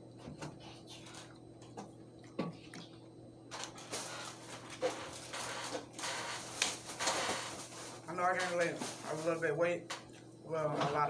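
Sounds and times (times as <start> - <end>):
chewing and mouth noises: 0.6 - 3.1.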